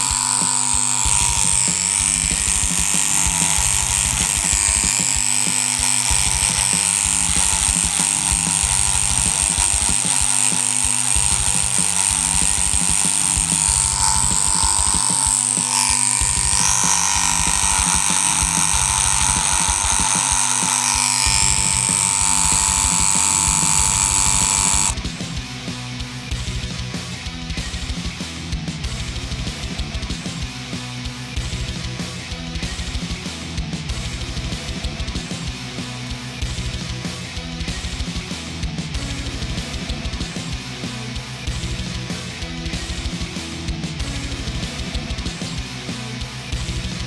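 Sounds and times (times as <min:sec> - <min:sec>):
tattoo machine buzzing: 0:00.0 - 0:25.0.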